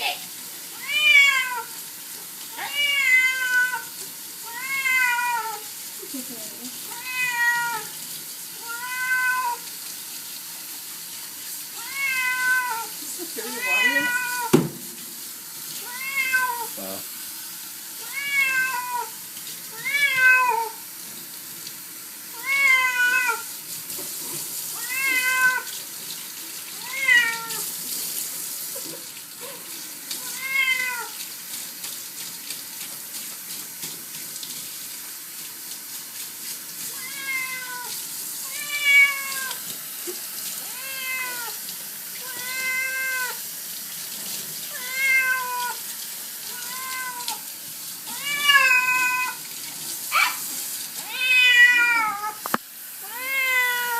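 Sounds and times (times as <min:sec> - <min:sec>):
tap water running: 0:00.0 - 0:53.9
cat meowing: 0:00.7 - 0:01.8, 0:02.5 - 0:05.7, 0:06.9 - 0:07.9, 0:08.6 - 0:09.7, 0:11.8 - 0:13.0, 0:13.6 - 0:14.6, 0:15.8 - 0:17.0, 0:18.0 - 0:20.8, 0:22.4 - 0:23.5, 0:24.8 - 0:25.7, 0:26.8 - 0:27.7, 0:30.2 - 0:31.2, 0:36.9 - 0:39.6, 0:40.6 - 0:41.6, 0:42.2 - 0:43.4, 0:44.7 - 0:45.8, 0:46.5 - 0:47.4, 0:48.1 - 0:49.4, 0:51.0 - 0:52.4, 0:53.0 - 0:53.9.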